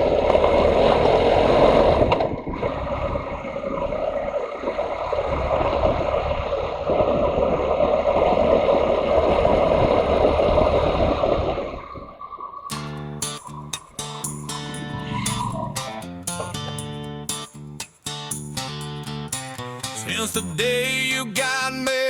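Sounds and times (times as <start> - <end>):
wind on microphone: 0.7 - 12.2.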